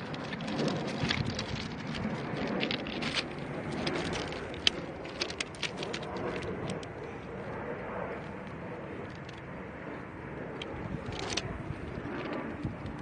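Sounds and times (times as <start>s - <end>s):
loose rocks crunching and clicking: 0.0s - 7.0s, 10.6s - 13.0s
background rumble: 0.0s - 13.0s.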